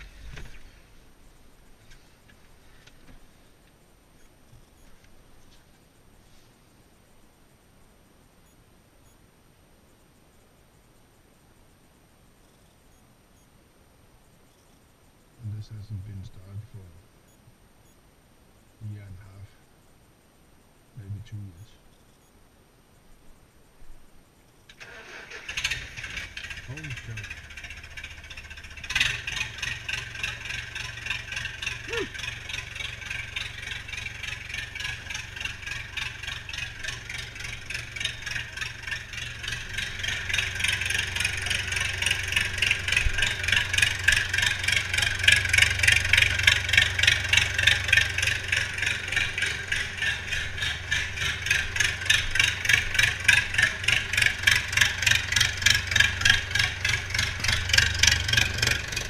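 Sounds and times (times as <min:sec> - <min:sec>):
tractor diesel engine clattering: 0:24.8 - 0:59.0.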